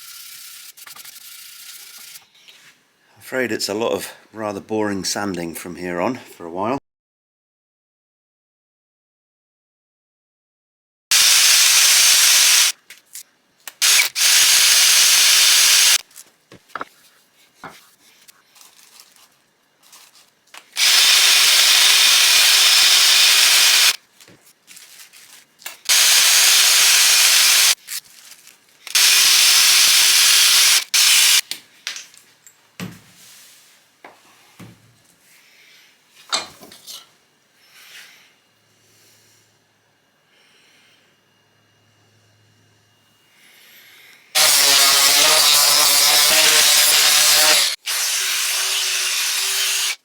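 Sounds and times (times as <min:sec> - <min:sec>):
grinder sanding metal: 0:11.1 - 0:12.7, 0:13.8 - 0:16.0, 0:20.8 - 0:24.0, 0:25.9 - 0:27.8, 0:44.4 - 0:50.0
knocks and handling: 0:16.2 - 0:17.9.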